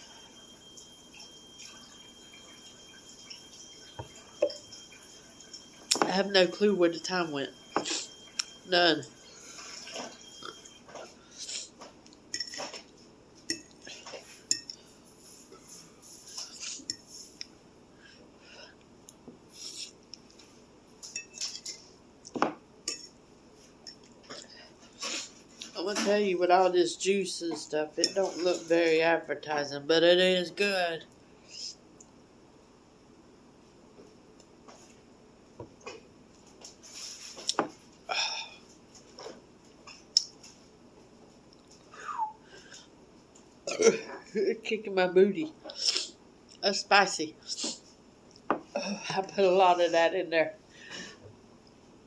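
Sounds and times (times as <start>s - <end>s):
utensil clinking against bowl: 12.3s - 12.8s, 22.9s - 23.2s.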